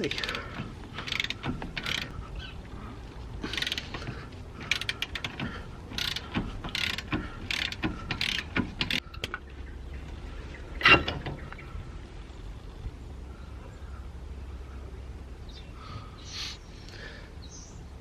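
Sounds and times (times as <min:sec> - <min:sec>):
hand ratchet clicking: 0:00.0 - 0:02.1, 0:03.4 - 0:09.4.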